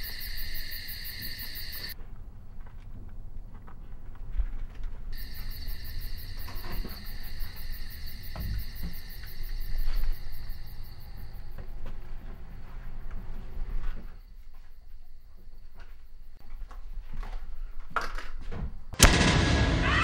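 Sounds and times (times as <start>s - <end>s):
crickets chirping: 0.0s - 2.0s, 5.1s - 18.9s.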